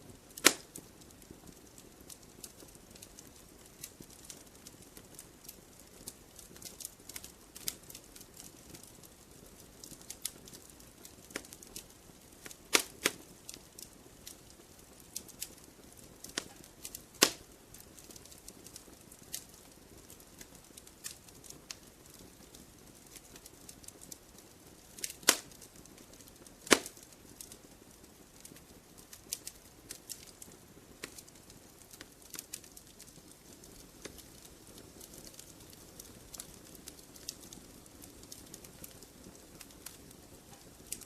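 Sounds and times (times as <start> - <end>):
fire hiss: 0.0 - 9.0, 12.4 - 22.2, 22.8 - 41.0
campfire crackling: 0.0 - 41.0.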